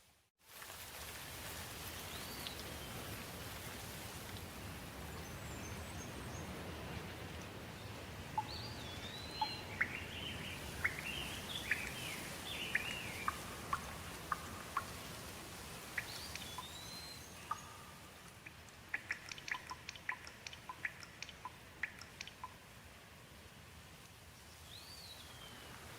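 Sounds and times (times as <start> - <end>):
steady rain: 0.0 - 25.9
water dripping: 0.5 - 5.8, 6.9 - 22.8
bird chirping and whistling: 16.0 - 17.8.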